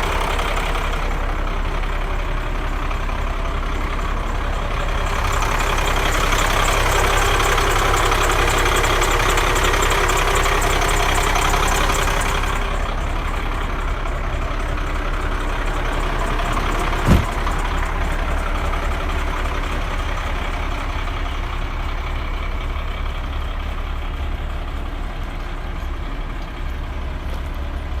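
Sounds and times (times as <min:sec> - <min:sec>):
truck engine idling: 0:00.0 - 0:28.0
sharp knock: 0:17.0 - 0:17.4.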